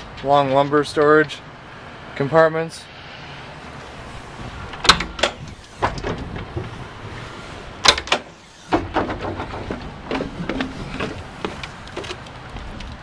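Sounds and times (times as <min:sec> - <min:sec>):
compartment doors and latches clacking: 0:04.7 - 0:06.6, 0:07.8 - 0:08.3.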